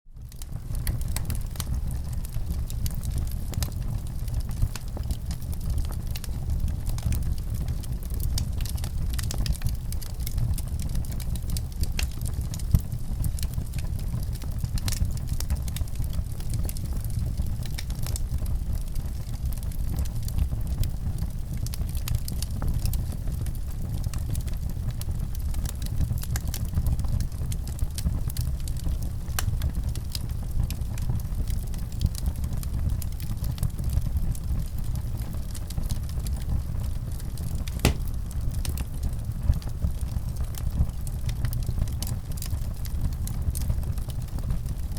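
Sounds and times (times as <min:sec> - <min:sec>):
fire popping and snapping: 0:00.2 - 0:44.9
wood fire crackling: 0:00.2 - 0:44.9.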